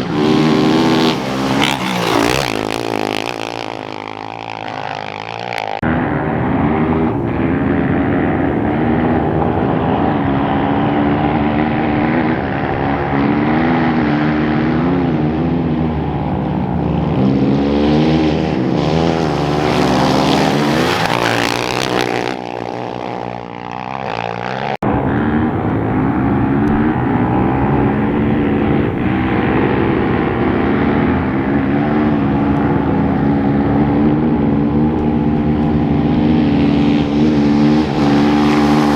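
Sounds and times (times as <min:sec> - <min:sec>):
loud rushing noise: 0:00.0 - 0:04.2, 0:18.8 - 0:22.5, 0:24.8 - 0:38.9
motorcycle engine revving: 0:00.0 - 0:38.9.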